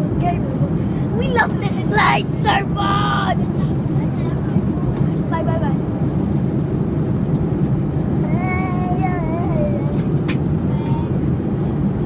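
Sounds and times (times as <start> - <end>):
car cabin road rumble: 0.0 - 12.0
child calling out: 1.2 - 3.4.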